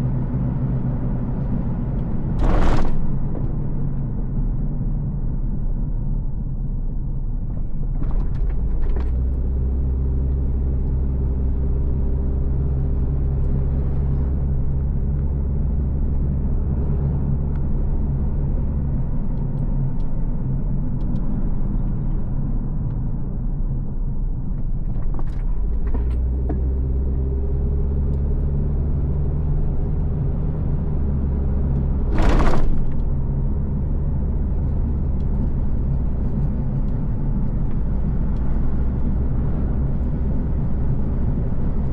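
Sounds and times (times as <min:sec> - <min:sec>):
car engine and road rumble: 0:00.0 - 0:41.9.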